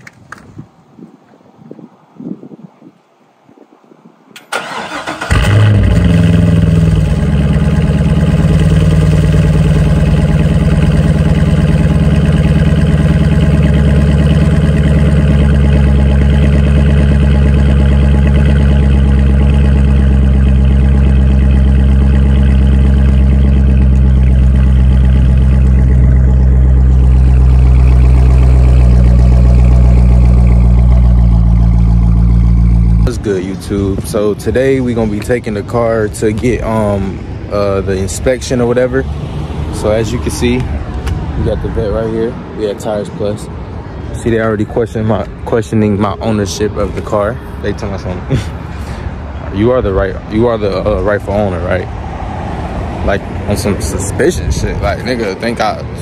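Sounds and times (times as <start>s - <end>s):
starter motor cranking: 4.5s - 7.0s
car engine idling: 4.5s - 39.0s, 39.7s - 56.0s.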